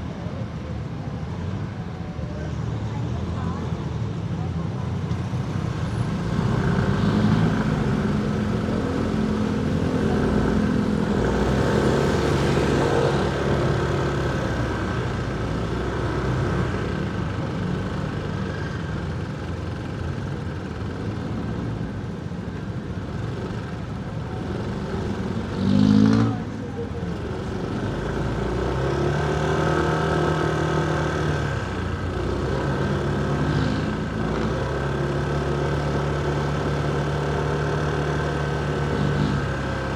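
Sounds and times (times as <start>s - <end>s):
motorcycle engine in traffic: 0.0s - 39.9s.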